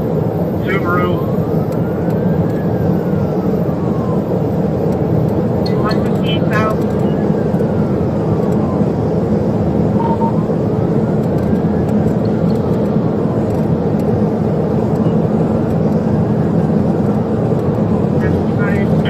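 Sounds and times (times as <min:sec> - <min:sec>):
road and engine noise: 0:00.0 - 0:19.0
wailing siren: 0:00.6 - 0:19.0
short beep: 0:10.0 - 0:10.5.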